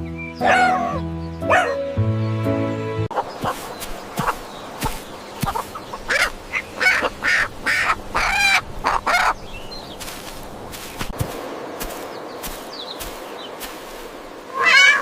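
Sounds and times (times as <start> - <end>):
chicken clucking: 3.1 - 9.4.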